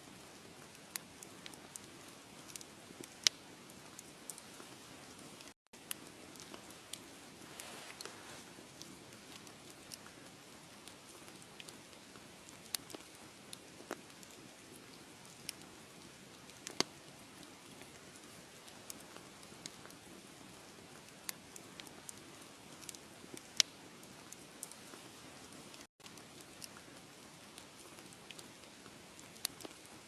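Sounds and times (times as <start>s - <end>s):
wood fire crackling: 0.1s - 30.0s.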